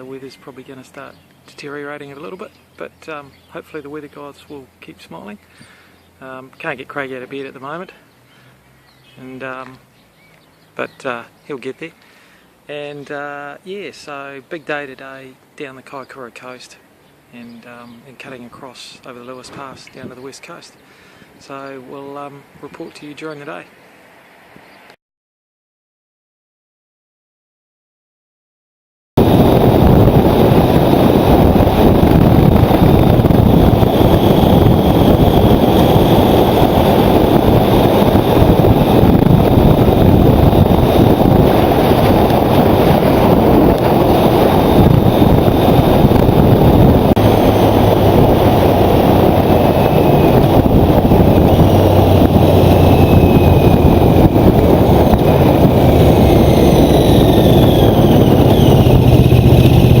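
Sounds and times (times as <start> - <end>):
wind rush over microphone: 29.2 - 60.0.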